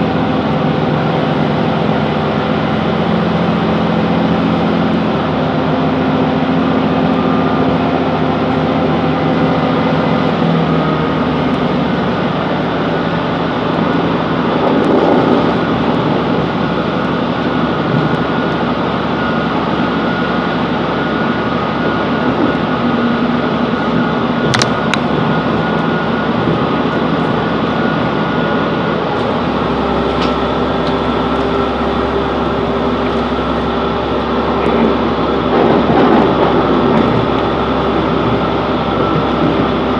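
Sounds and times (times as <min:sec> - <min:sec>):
diesel train engine: 0:00.0 - 0:39.9
wheels on rails: 0:11.6 - 0:39.9
deep hum: 0:22.0 - 0:39.9.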